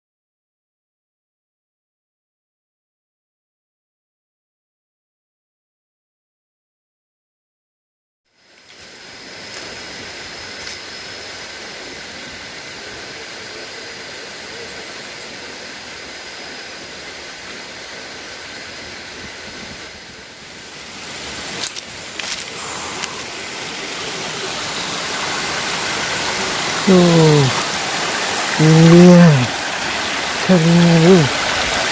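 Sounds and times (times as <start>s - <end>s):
waterfall rushing: 12.8s - 31.9s.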